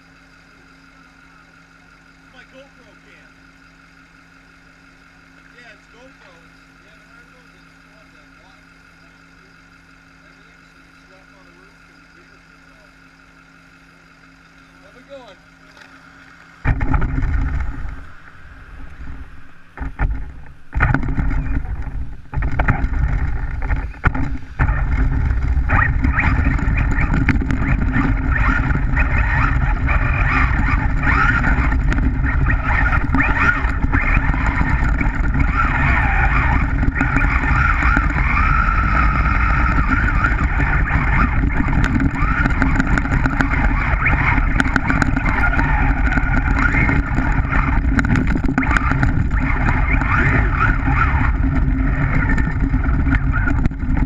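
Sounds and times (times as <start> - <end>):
toy car motor whirring: 0.0 - 54.0
tyres rumbling through snow: 16.0 - 54.0.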